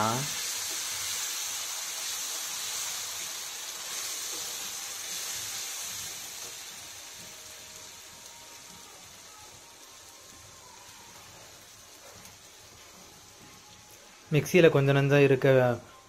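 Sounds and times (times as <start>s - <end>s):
paste sizzling in hot oil: 0.0s - 16.0s.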